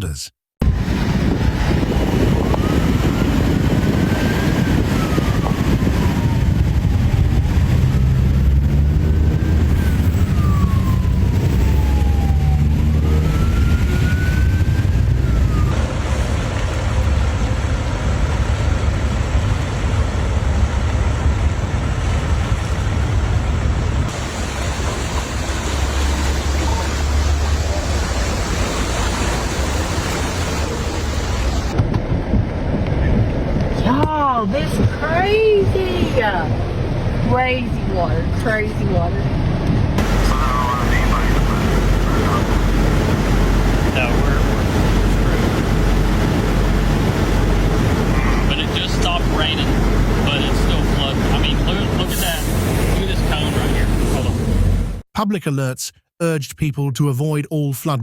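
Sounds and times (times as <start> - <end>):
loud low rumble: 0.6 - 55.0
emergency siren wailing: 0.7 - 22.3, 24.1 - 31.8, 39.4 - 55.0.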